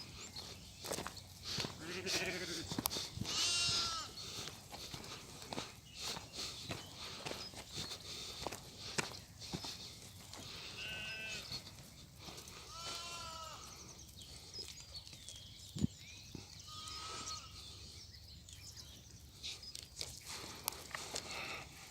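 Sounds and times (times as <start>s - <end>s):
sheep bleating: 1.8s - 4.2s, 10.6s - 11.5s, 12.7s - 13.7s, 16.6s - 17.6s
rustling and clicking of feeding: 13.7s - 16.6s, 18.4s - 21.4s.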